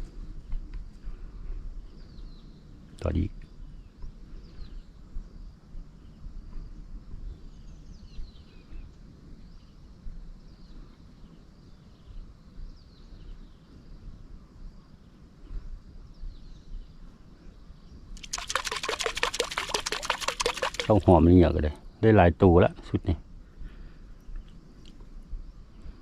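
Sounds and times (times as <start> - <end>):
water splashing and rushing: 18.2 - 21.2.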